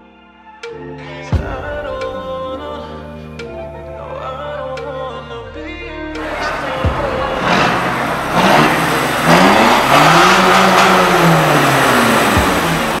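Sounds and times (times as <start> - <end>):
car engine revving: 6.2 - 13.0.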